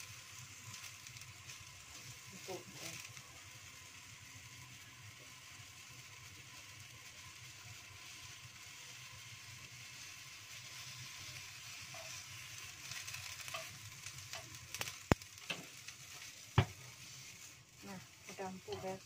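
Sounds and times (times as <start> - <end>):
eggplant sizzling in a wok: 0.0 - 19.0
chopsticks scraping a pan: 9.7 - 19.0.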